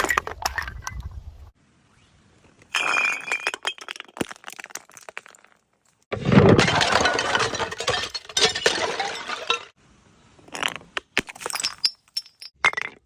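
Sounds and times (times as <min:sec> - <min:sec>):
glass bottle shattering: 0:02.7 - 0:05.4, 0:06.3 - 0:09.8, 0:11.3 - 0:13.0
glass shards clinking: 0:06.6 - 0:09.8.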